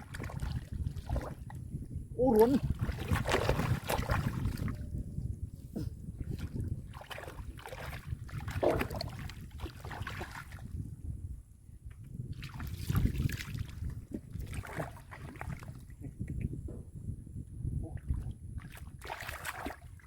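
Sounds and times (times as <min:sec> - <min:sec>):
splashing in muddy water: 0:00.0 - 0:01.6, 0:02.2 - 0:04.8, 0:06.2 - 0:10.8, 0:12.3 - 0:16.2, 0:18.0 - 0:20.0.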